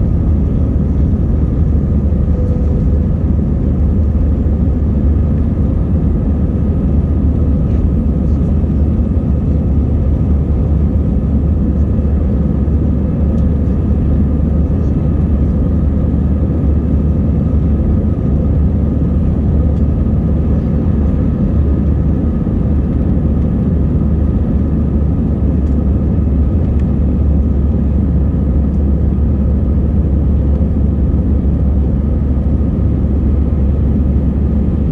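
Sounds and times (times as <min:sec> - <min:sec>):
faint steady hum: 0:00.0 - 0:10.3
jet engine rumble: 0:00.0 - 0:34.9.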